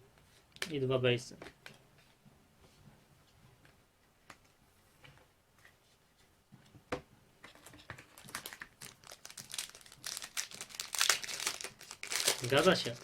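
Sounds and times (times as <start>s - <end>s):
foil wrapper crinkling: 8.0s - 13.0s.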